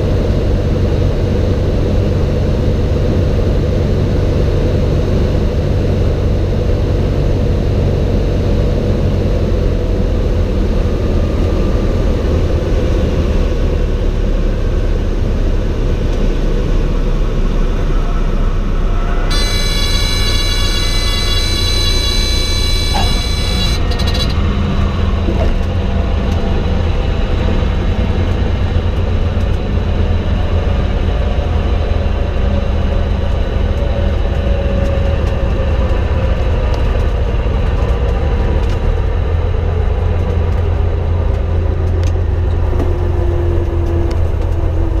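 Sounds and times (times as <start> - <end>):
aircraft engine and propeller drone: 0.0 - 45.0
faint tone sliding down: 17.9 - 24.3
shrill tone: 18.9 - 24.4.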